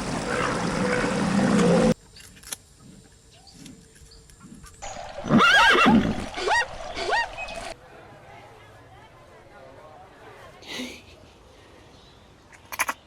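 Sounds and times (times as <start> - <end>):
horse whinnying: 4.9 - 7.6.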